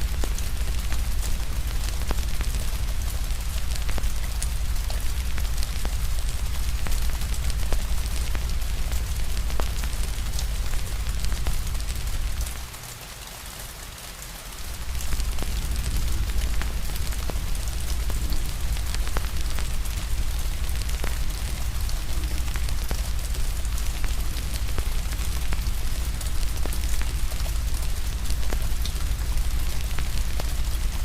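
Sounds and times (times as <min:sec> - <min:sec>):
wood fire crackling: 0:00.0 - 0:12.8, 0:14.5 - 0:31.0
rain falling: 0:00.0 - 0:31.0
deep rumble: 0:14.7 - 0:31.0.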